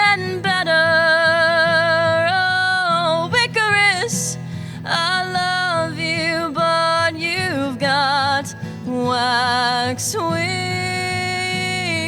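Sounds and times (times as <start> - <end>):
woman singing with vibrato: 0.0 - 12.0
quick breath: 4.4 - 4.9.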